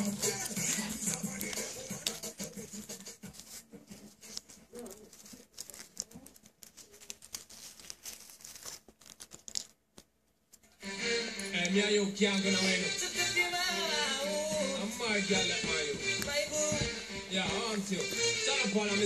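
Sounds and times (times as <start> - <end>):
hands clicking and tapping small parts: 0.0 - 3.1, 4.2 - 10.8
background music: 0.0 - 3.4, 10.8 - 19.0.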